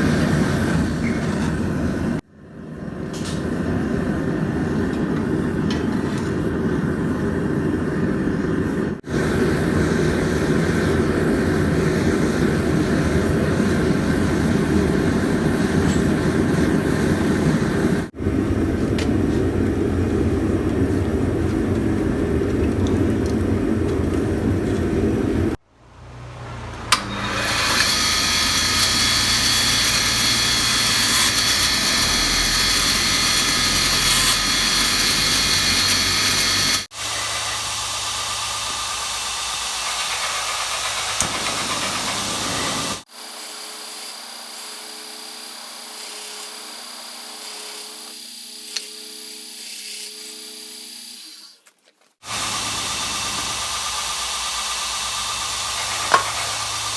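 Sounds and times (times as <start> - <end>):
machine spinning with high whine: 26.9 - 50.1, 52.2 - 56.9
power tools running: 26.9 - 51.6, 52.2 - 56.9.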